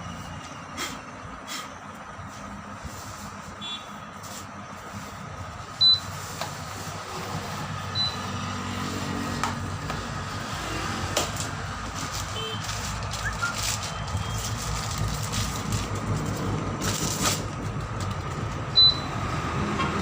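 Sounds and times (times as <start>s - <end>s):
road traffic: 0.0s - 20.0s
high-pitched beep: 5.8s - 6.1s, 8.0s - 8.2s, 18.8s - 19.1s.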